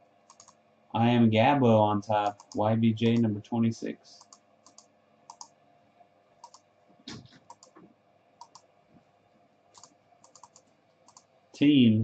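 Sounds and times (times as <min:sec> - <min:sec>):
computer mouse clicks: 0:00.2 - 0:00.6, 0:02.2 - 0:03.3, 0:04.2 - 0:05.6, 0:06.4 - 0:08.7, 0:09.7 - 0:11.3.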